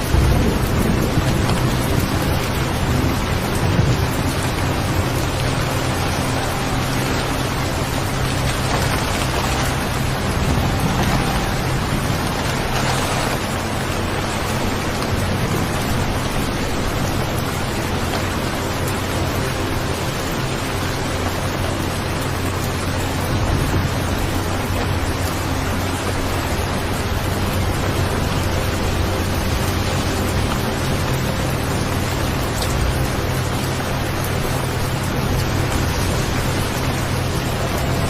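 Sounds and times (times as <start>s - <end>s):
low rumble: 0.0s - 18.7s
steady rain hissing: 0.0s - 38.0s.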